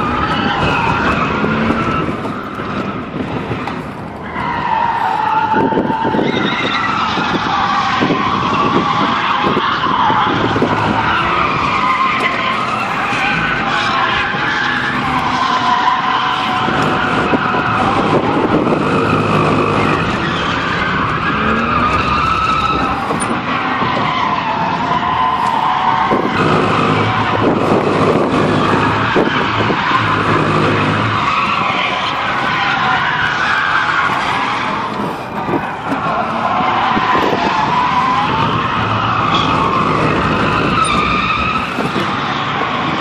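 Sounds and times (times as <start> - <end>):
car engine running hard: 0.0 - 43.0
tyres skidding: 0.0 - 43.0.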